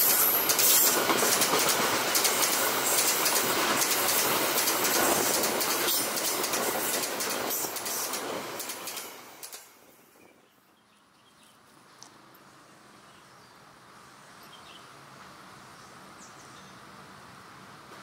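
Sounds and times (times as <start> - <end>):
wagon wheels clacking over rail joints: 0.0 - 9.7
freight train rolling past: 0.0 - 10.2.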